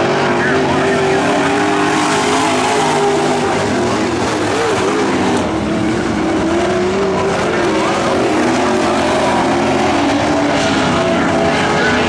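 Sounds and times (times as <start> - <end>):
racing truck engines: 0.0 - 12.0.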